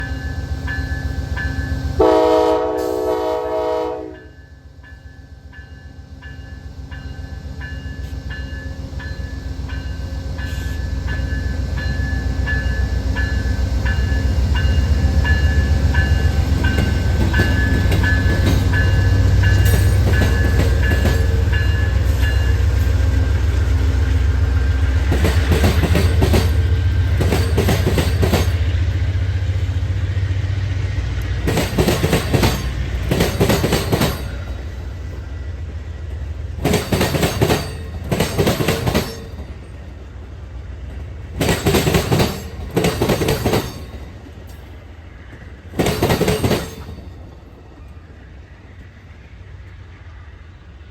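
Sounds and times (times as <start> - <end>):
train bell ringing: 0.0 - 3.0, 4.0 - 23.2, 25.1 - 29.3, 31.5 - 35.3, 36.6 - 40.0, 41.4 - 48.0
diesel locomotive rumble: 6.2 - 50.9
wheels clacking over rail joints: 11.1 - 29.7, 31.3 - 35.3, 36.1 - 40.1, 40.9 - 47.9.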